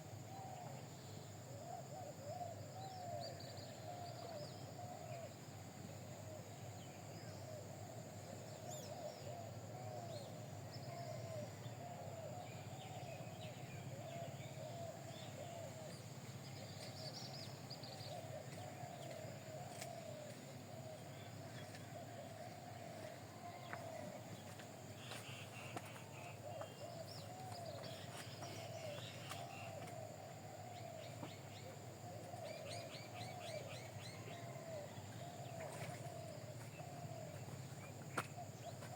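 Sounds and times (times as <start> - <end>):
birds cooing: 8.7 - 38.9.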